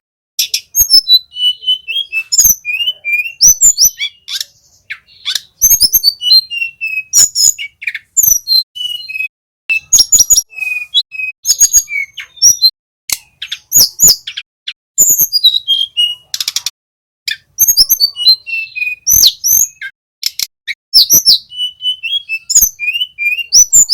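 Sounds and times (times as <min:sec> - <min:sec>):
bird singing whistled notes: 0:00.4 - 0:16.7, 0:17.3 - 0:23.9.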